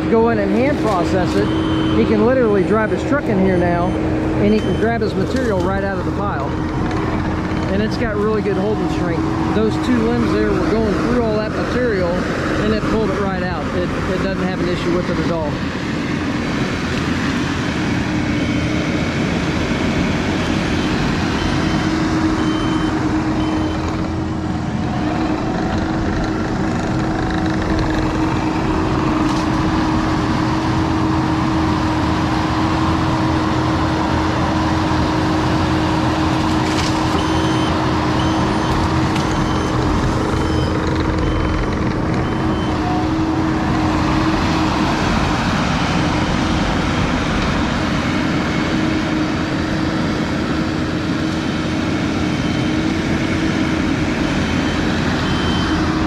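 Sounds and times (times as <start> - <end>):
skid steer engine running: 0.0 - 56.0
backup alarm beeping: 0.6 - 10.4, 20.6 - 24.1, 37.1 - 44.3, 54.4 - 55.9.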